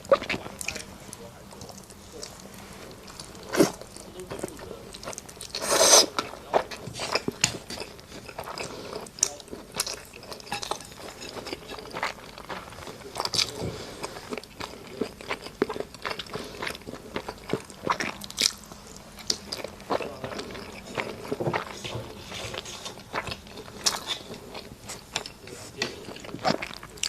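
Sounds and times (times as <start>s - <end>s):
person chewing food: 0.0s - 27.0s.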